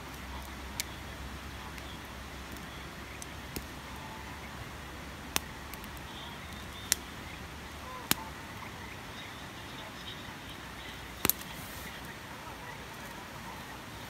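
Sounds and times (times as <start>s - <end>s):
sharp fire pops: 0.0s - 3.8s, 5.1s - 9.0s, 11.0s - 12.2s
campfire crackling: 0.0s - 14.0s
steady background hiss: 0.0s - 14.0s.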